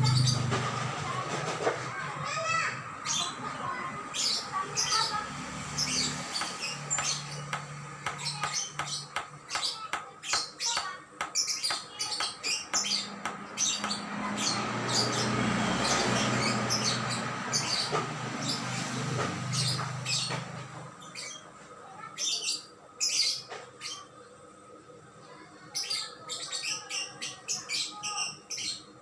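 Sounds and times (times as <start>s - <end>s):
songbirds chirping: 3.0s - 21.5s.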